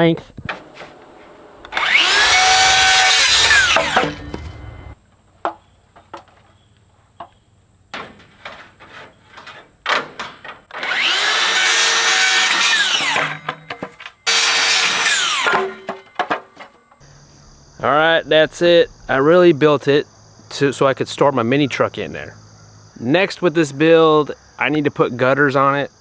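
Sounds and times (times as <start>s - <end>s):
power saw cutting lumber: 0.5s - 5.0s, 10.7s - 16.5s.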